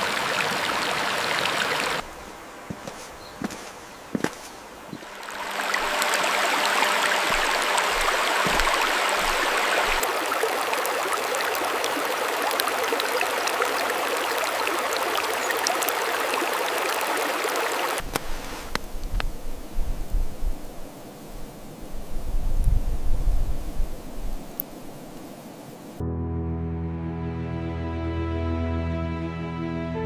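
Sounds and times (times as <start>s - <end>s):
stream water rushing: 0.0s - 19.2s.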